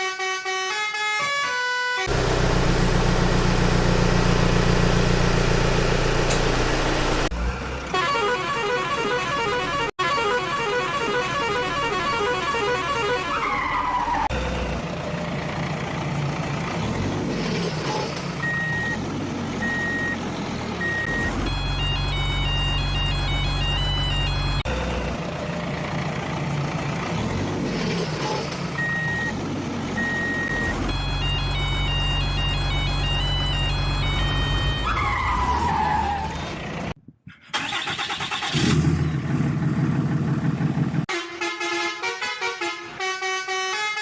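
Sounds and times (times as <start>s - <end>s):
recorded engine rumble: 2.0s - 8.1s, 14.2s - 41.1s.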